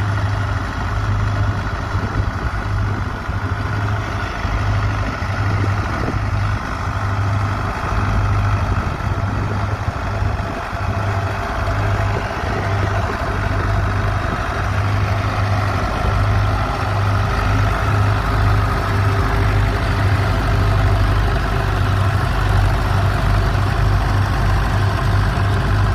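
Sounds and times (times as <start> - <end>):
tractor engine running: 0.0 - 25.9.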